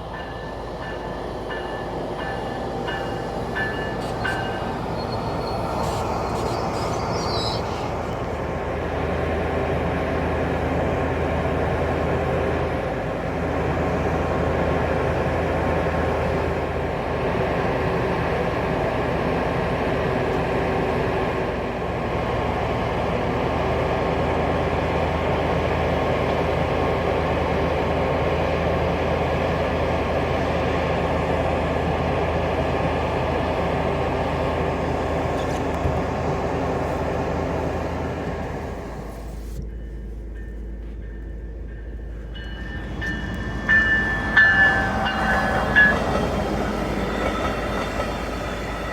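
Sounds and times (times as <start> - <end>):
locomotive engine drone: 0.0 - 48.9
high squeal: 3.7 - 8.4.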